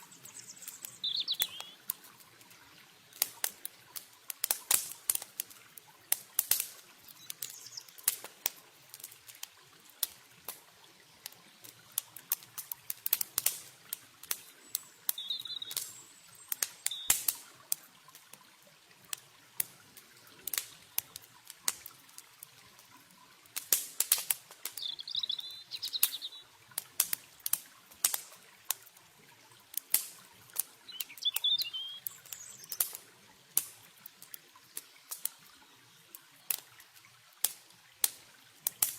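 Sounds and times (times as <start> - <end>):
campfire crackling: 0.0 - 38.9
faint running water: 0.0 - 38.9
small bird chirping: 0.1 - 1.8, 7.1 - 7.9, 14.7 - 17.1, 24.7 - 26.4, 30.9 - 32.8.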